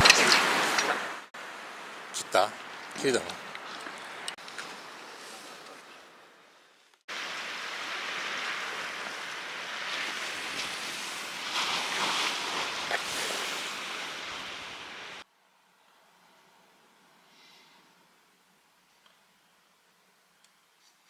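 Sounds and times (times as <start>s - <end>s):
sea waves washing ashore: 0.0s - 6.2s, 7.1s - 15.2s.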